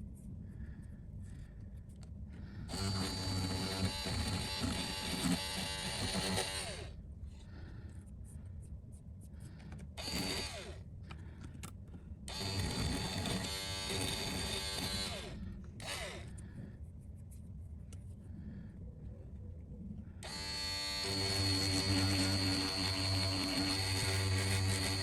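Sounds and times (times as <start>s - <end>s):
small electric rotary tool: 2.7s - 7.0s, 10.0s - 10.8s, 12.3s - 16.4s, 20.2s - 25.0s.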